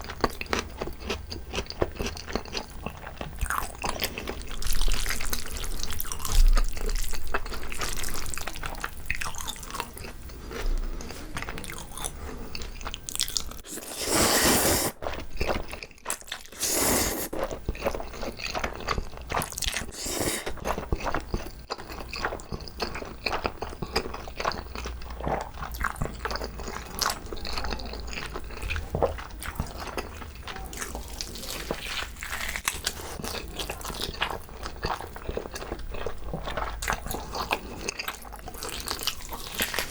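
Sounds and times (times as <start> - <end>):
wet chewing and smacking: 0.0 - 39.9.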